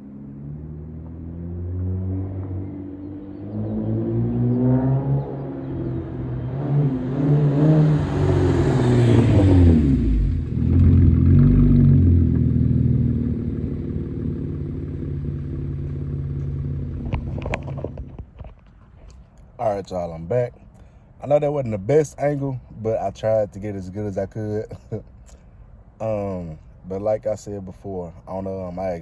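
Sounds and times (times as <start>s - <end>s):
car driving past: 0.0s - 17.9s
car exhaust revving: 0.3s - 18.2s.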